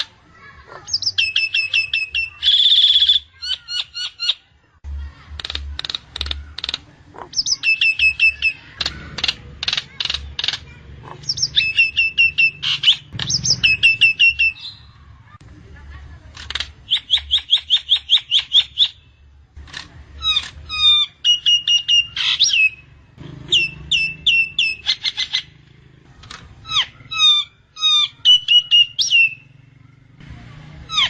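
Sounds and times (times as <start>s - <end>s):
myna clicking and whistling calls: 5.4s - 14.7s, 16.4s - 19.0s, 19.6s - 22.8s.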